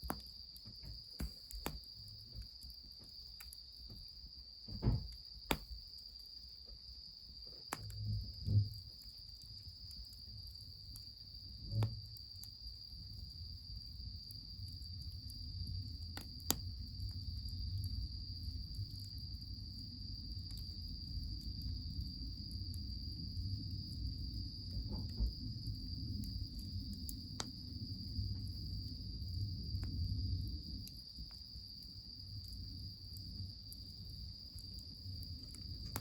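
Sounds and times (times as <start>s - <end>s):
high insect trill: 0.0s - 36.0s
wood fire crackling: 0.0s - 36.0s
soft thumps: 4.7s - 5.6s.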